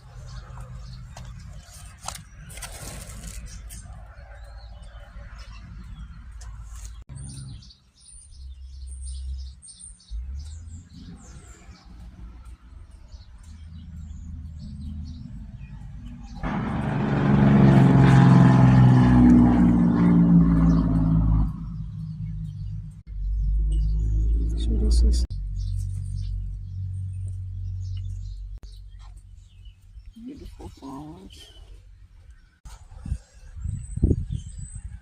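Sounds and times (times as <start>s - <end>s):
small birds chirping: 0.0s - 16.5s, 20.3s - 35.0s
vehicle engine running: 0.0s - 32.6s
low rumble: 8.3s - 35.0s.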